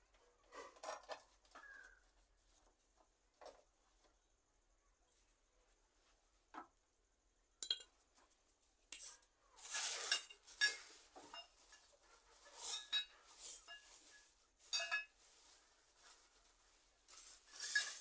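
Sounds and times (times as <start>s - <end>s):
metal parts clinking and scraping: 17.2s - 18.0s.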